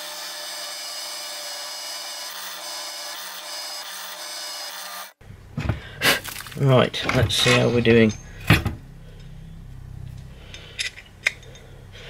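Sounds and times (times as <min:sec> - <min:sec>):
motor low hum: 0:08.1 - 0:12.0.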